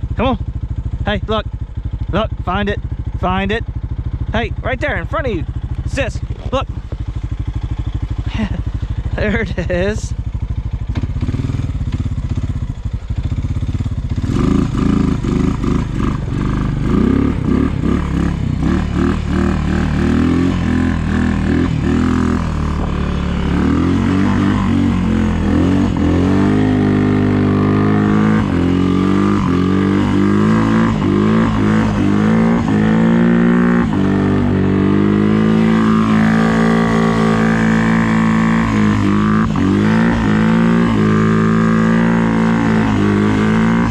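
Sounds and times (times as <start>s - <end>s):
snow plow engine revving: 14.1s - 43.9s.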